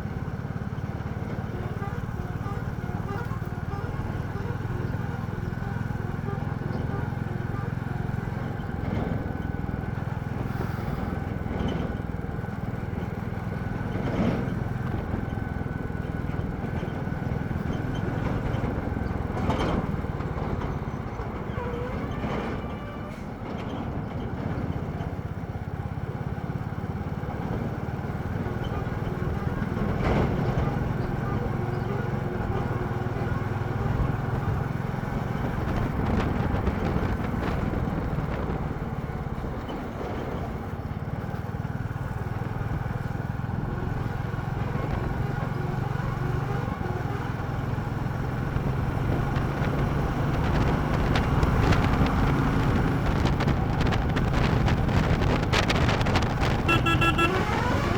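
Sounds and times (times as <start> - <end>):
motorcycle engine running: 25.1 - 57.9.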